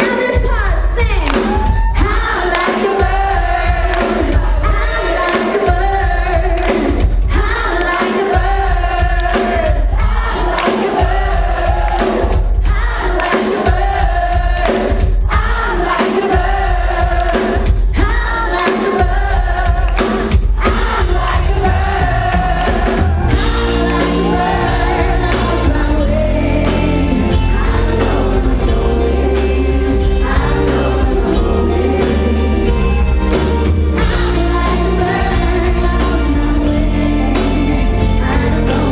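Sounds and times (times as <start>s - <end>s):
woman singing pop ballad: 0.0s - 33.4s, 34.0s - 38.9s
live band playing: 0.0s - 38.9s
sustained low chords: 23.3s - 38.9s.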